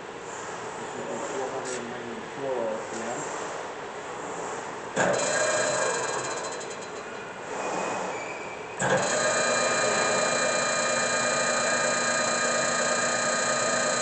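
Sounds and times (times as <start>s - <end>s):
lathe gearhead whining: 5.0s - 14.0s
lathe spindle switching on: 8.8s - 14.0s.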